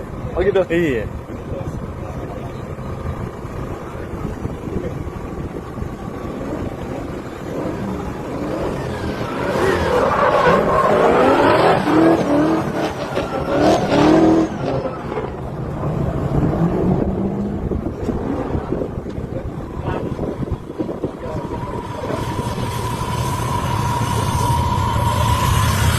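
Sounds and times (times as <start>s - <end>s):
car engine revving hard: 6.4s - 15.2s.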